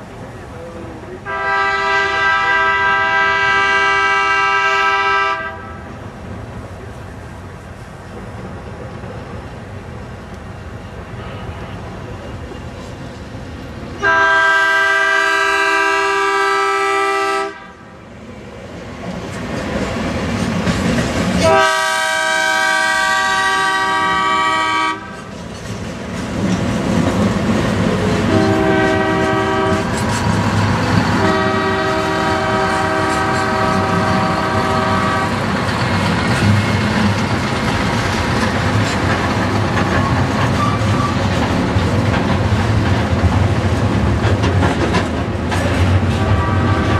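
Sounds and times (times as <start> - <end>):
train rumbling on rails: 0.0 - 46.9
locomotive air horn blasts: 1.2 - 5.8, 14.0 - 17.8, 21.4 - 25.2, 28.3 - 30.0, 31.2 - 35.4, 46.1 - 46.9.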